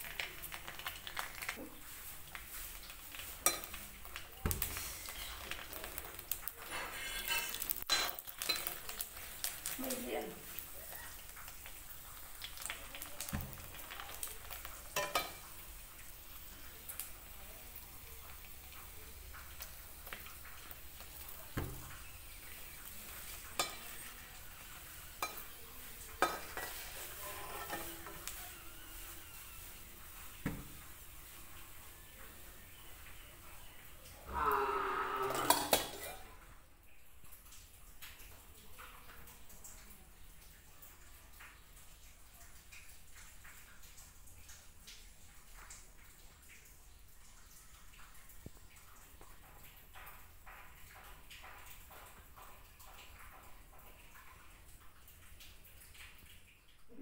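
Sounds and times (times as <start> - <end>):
dough sizzling in hot oil: 0.0 - 57.0
metal ladle scraping pan: 6.6 - 8.6, 26.2 - 28.4, 35.0 - 36.1.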